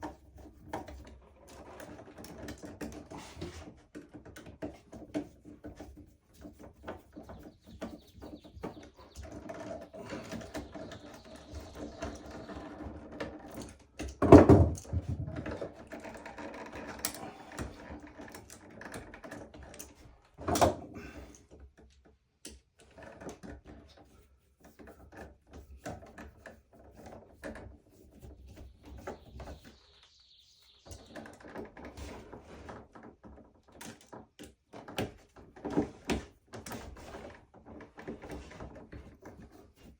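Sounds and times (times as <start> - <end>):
clicks and knocks of tools: 16.8 - 23.8.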